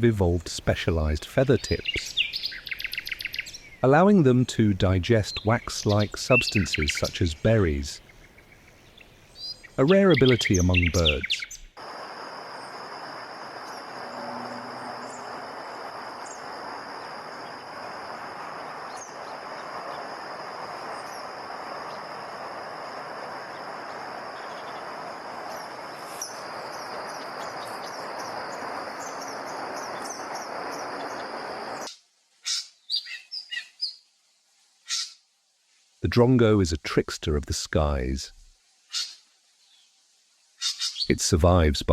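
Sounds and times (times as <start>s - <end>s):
small birds chirping: 1.4s - 3.9s, 5.1s - 34.0s, 40.6s - 41.2s
steady hiss: 3.5s - 32.4s, 34.0s - 41.9s
constant high tone: 12.5s - 16.5s.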